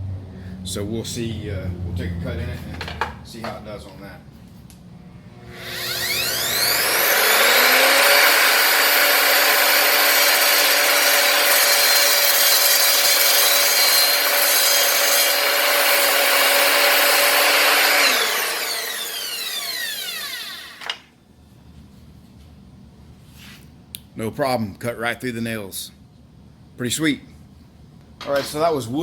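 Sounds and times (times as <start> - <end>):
mitre saw motor whining: 5.0 - 21.0
saw cutting through wood and nails: 5.4 - 21.0.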